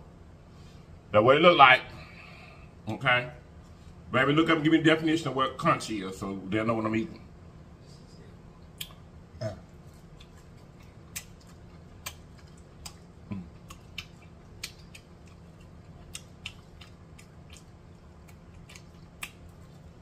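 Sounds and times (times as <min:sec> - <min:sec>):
wet smacking chewing: 0:09.7 - 0:20.0.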